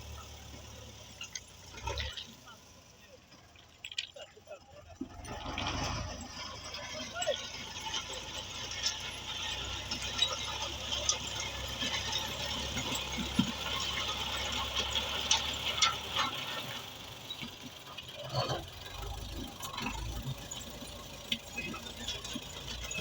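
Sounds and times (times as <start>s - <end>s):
clicks rattles and squeaks: 0.0s - 23.0s
construction machinery rumble: 0.0s - 23.0s.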